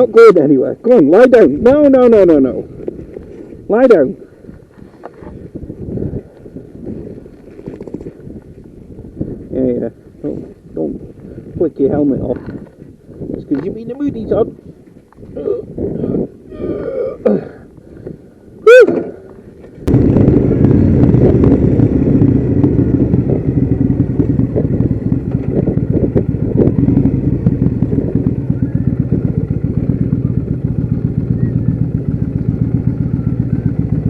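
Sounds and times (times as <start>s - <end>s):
motorcycle engine running: 19.2s - 34.0s
rising high-pitched call: 31.3s - 31.9s.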